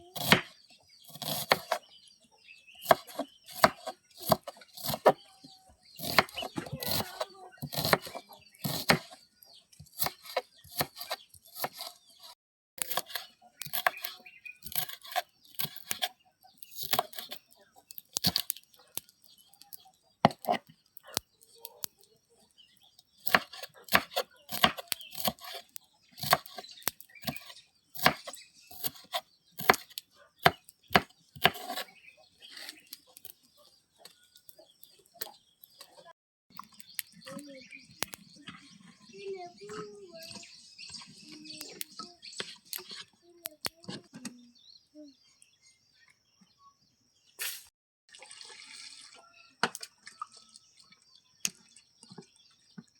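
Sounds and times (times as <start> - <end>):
knife chopping vegetables: 0.1 - 1.8, 2.8 - 9.2, 9.8 - 18.6, 19.6 - 21.2, 23.1 - 31.9.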